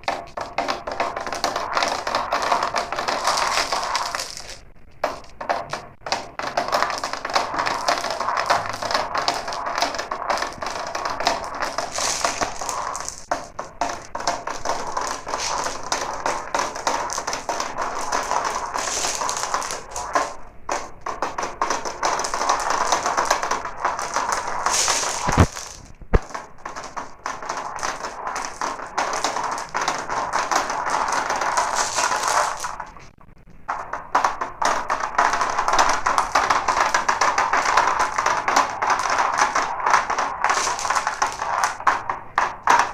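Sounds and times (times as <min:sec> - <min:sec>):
glass marbles rattling down a run: 0:00.0 - 0:05.5, 0:06.2 - 0:20.4, 0:21.1 - 0:33.0, 0:34.1 - 0:42.9
sharp knocks: 0:00.0 - 0:42.9.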